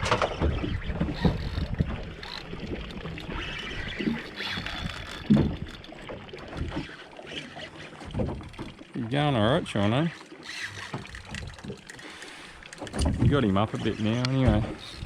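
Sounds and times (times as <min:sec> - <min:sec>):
knocks on a fishing boat: 0:14.4 - 0:14.8.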